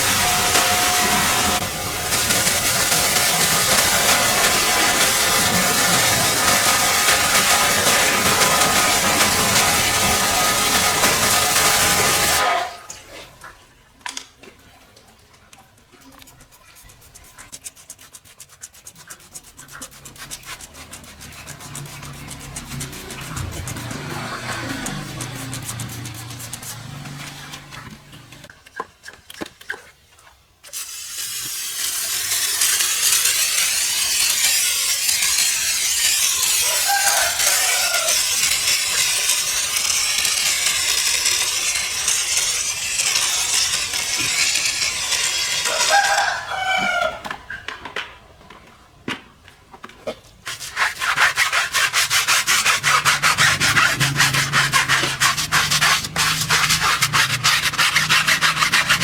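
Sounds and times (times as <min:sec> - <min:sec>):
brush strokes: 0:00.0 - 0:12.4, 0:16.1 - 0:28.5, 0:50.5 - 0:59.0
hissing scrub on car: 0:00.0 - 0:12.5, 0:18.6 - 0:28.5, 0:30.9 - 0:46.4, 0:50.5 - 0:59.0
faint rooster crowing: 0:36.6 - 0:38.3, 0:45.7 - 0:47.4.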